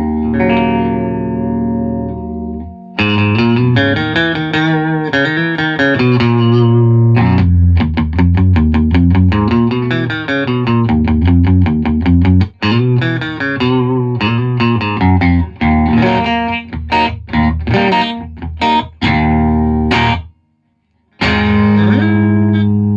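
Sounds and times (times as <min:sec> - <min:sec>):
electric guitar chords: 0:00.0 - 0:20.3, 0:21.2 - 0:22.9.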